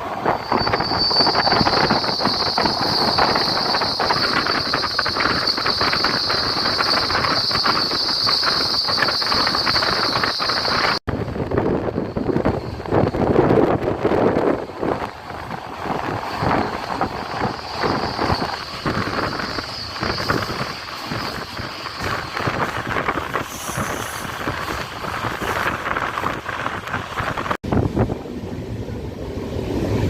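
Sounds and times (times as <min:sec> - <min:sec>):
rushing wind: 0:00.0 - 0:30.0
thin high whine: 0:00.1 - 0:11.0, 0:14.6 - 0:26.6.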